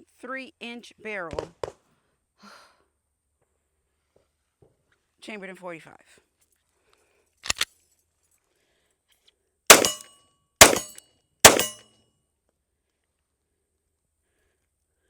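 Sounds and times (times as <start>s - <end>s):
pistol shots: 9.7s - 10.0s, 10.6s - 11.8s
sharp double click: 9.7s - 10.0s, 10.6s - 11.8s.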